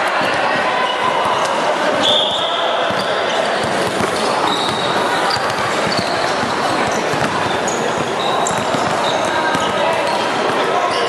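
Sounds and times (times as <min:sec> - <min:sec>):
shoe squeaks: 0:00.8 - 0:11.0
basketball bouncing on court: 0:02.8 - 0:10.8.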